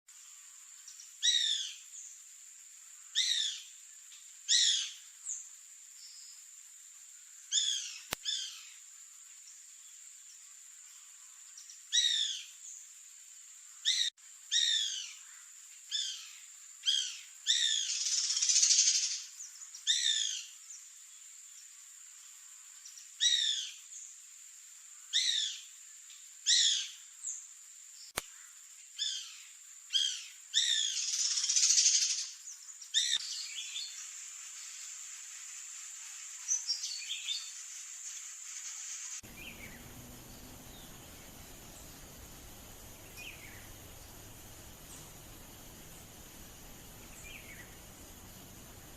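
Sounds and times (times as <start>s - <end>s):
bird singing falling notes: 39.2s - 48.9s.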